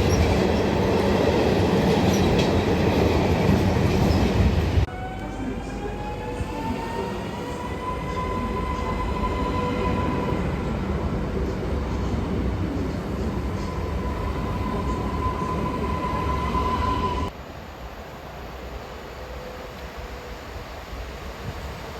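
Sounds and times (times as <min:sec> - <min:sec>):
train rumble: 0:00.0 - 0:21.9.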